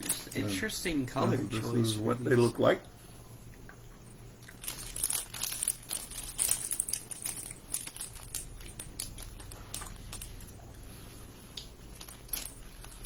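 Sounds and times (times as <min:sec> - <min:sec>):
plastic wrapper crinkling: 0:04.5 - 0:07.2.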